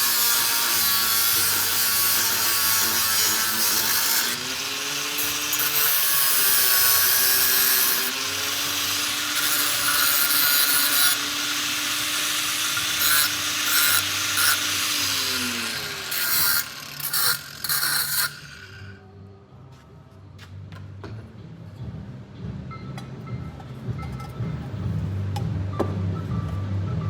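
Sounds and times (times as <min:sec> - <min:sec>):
power tool rasping hiss: 0:00.0 - 0:19.0.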